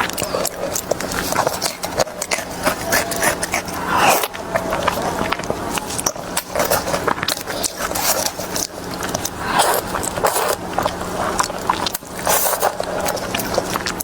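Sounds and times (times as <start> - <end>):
food being chewed and crunched: 0.0 - 14.0
steady low hum: 0.0 - 14.0.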